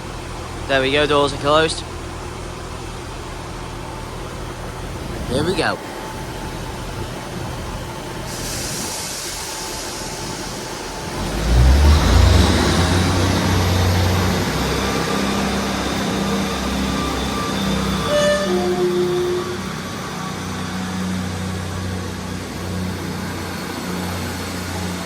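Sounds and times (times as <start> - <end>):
diesel engines rumbling and whining: 0.0 - 25.0
hiss of air: 8.2 - 11.3.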